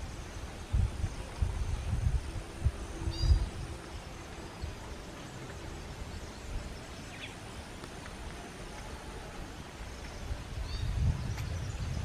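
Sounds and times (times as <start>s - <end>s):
high bird calls: 2.9s - 12.0s.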